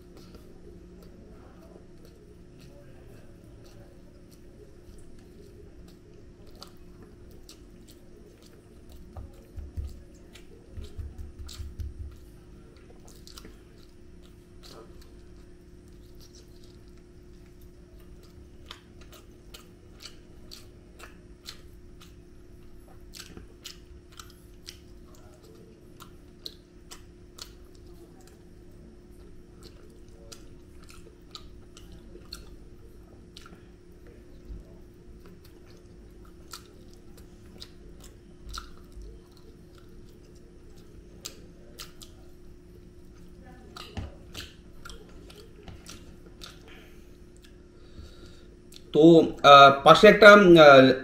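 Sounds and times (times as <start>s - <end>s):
person chewing food: 0.0s - 49.0s
steady low hum: 0.0s - 51.0s
mouth clicks and smacks: 7.4s - 15.1s, 35.2s - 42.3s, 43.1s - 46.8s, 47.4s - 47.6s, 48.7s - 49.0s.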